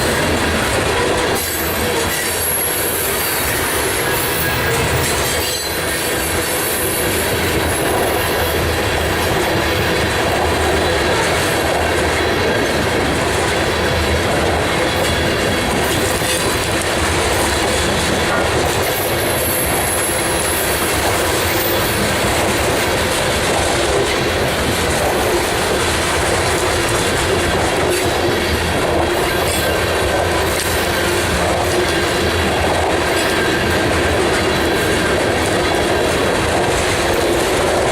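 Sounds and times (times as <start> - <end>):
freight train wheels rumbling on rail: 0.0 - 37.9
wheels clacking over rail joints: 0.0 - 37.9
high wheel squeal: 0.9 - 8.3, 18.9 - 22.7.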